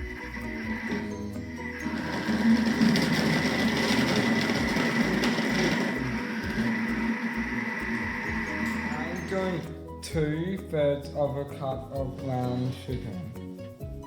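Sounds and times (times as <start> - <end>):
electric mixer beating butter: 0.0 - 9.8.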